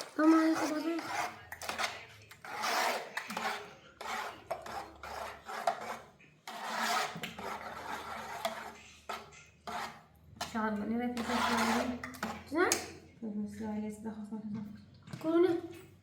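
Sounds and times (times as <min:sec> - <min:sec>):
rasping scraping strokes: 0:00.0 - 0:10.6, 0:11.2 - 0:12.5.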